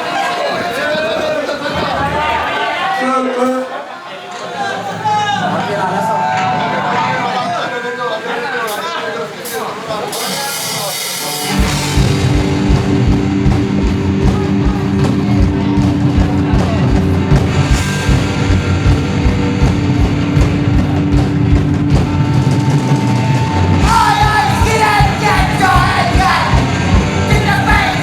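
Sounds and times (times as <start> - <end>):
drum kit: 10.2 - 28.0
distorted electric guitar: 10.5 - 28.0
guitar lead-in: 11.4 - 28.0
bass guitar: 11.5 - 28.0.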